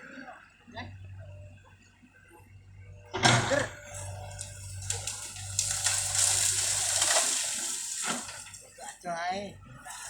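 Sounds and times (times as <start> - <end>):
excavator engine hum: 0.0 - 10.0
rustling of bamboo leaves: 4.2 - 9.0.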